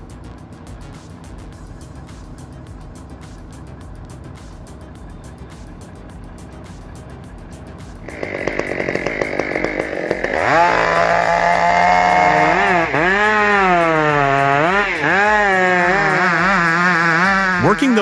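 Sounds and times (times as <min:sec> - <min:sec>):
chainsaw cutting wood: 0:08.0 - 0:18.0.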